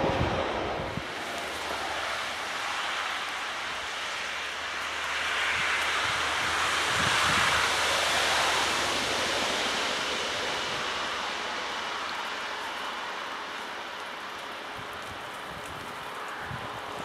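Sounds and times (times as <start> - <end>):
high-speed train rushing: 0.0 - 12.1.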